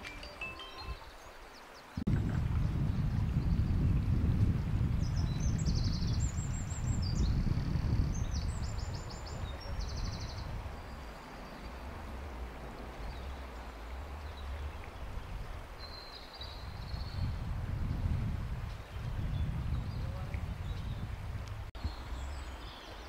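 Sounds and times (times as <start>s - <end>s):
low rumble: 2.1s - 8.9s, 9.5s - 15.8s
river rushing: 9.0s - 17.6s.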